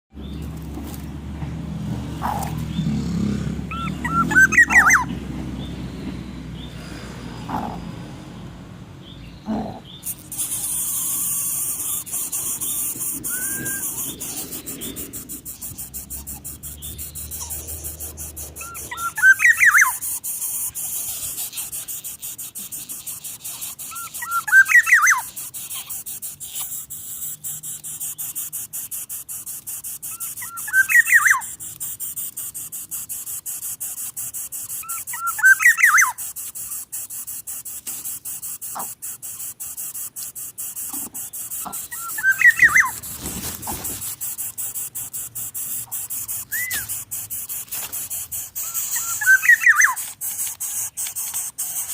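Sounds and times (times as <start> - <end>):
bird whistling call: 3.7 - 5.1, 12.6 - 14.4, 18.6 - 20.0, 23.9 - 25.3, 30.2 - 31.5, 34.8 - 36.2, 41.9 - 43.0, 46.4 - 46.9, 48.7 - 50.0
steady high hiss: 10.0 - 51.9.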